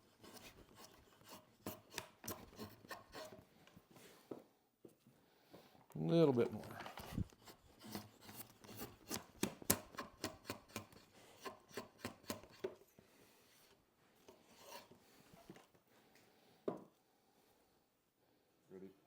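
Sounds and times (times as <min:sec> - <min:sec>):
draw knife slicing wood: 0:00.2 - 0:03.4, 0:07.0 - 0:12.8.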